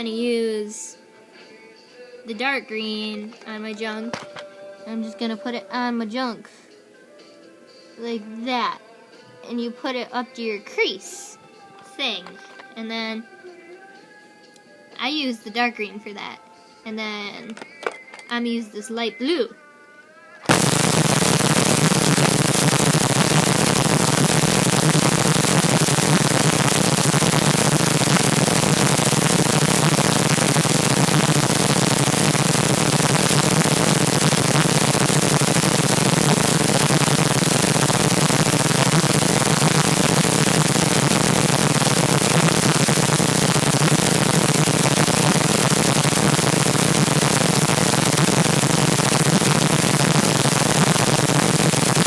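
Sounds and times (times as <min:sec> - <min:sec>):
harsh static noise: 0:20.4 - 0:52.0
low buzz: 0:20.5 - 0:52.0.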